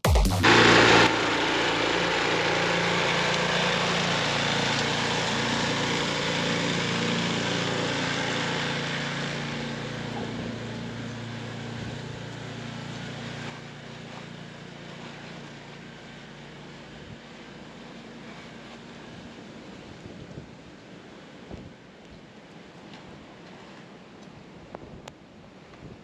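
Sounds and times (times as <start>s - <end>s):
snowblower engine running: 0.0s - 20.0s.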